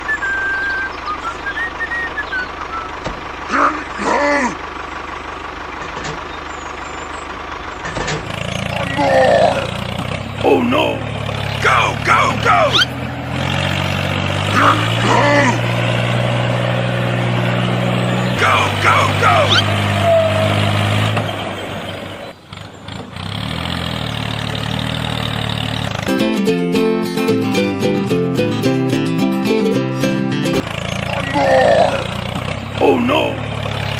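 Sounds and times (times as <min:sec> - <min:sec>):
mechanical engine drone: 0:00.0 - 0:26.7, 0:30.2 - 0:33.9
short two-part voice-like call: 0:18.4 - 0:20.4
music: 0:26.1 - 0:30.6.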